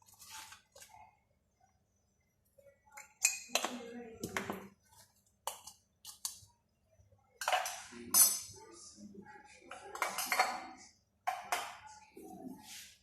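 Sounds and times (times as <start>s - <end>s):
utensils clattering against bowl: 7.4s - 8.8s, 9.6s - 11.9s.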